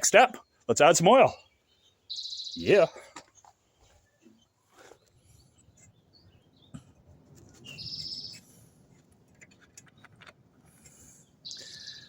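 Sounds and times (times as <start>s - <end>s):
bird trill: 1.3s - 3.4s, 7.6s - 8.4s, 11.4s - 12.0s.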